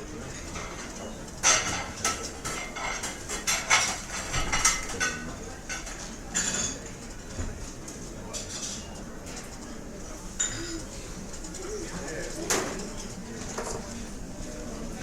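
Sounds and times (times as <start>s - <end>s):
plates and cutlery clattering: 0.3s - 6.9s.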